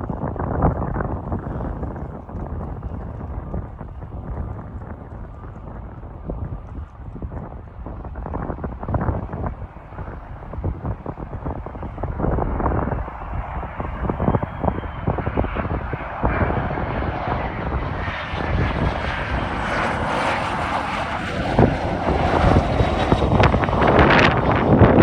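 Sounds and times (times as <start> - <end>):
jet engines rushing: 0.0 - 25.0.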